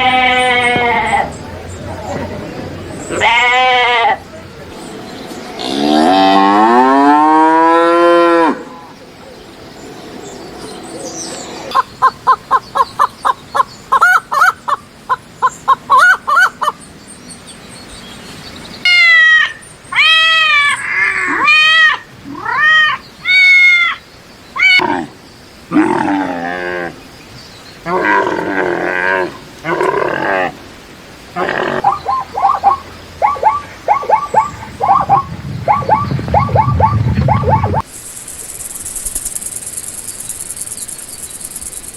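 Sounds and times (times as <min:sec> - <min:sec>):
higher arching animal calls: 0:00.0 - 0:04.3, 0:11.7 - 0:16.8, 0:18.8 - 0:27.0, 0:31.3 - 0:41.9
cow mooing: 0:05.6 - 0:08.7
short evenly spaced calls: 0:11.7 - 0:17.0, 0:31.7 - 0:41.9.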